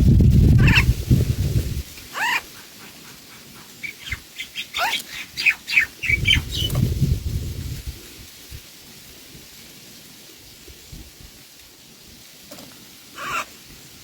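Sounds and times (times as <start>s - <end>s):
low rumbling noise: 0.0s - 2.1s, 6.0s - 8.6s
small bird chirping: 0.6s - 0.9s, 2.1s - 6.9s.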